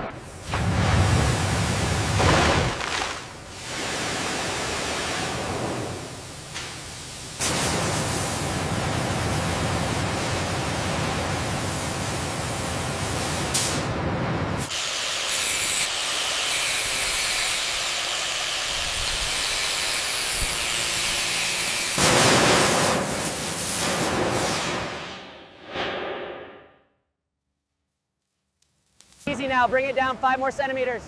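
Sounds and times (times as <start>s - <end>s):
loud hissing rush of noise: 0.1s - 14.0s.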